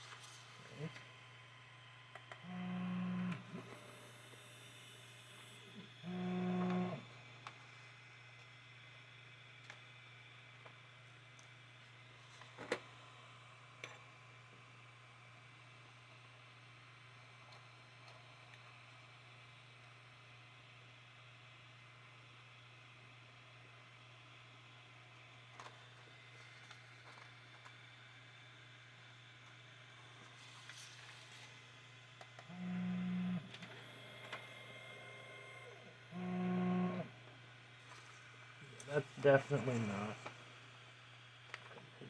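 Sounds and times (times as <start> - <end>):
faint low hum: 0.0 - 42.0
stepper motor buzzing: 2.4 - 7.1, 32.4 - 37.2.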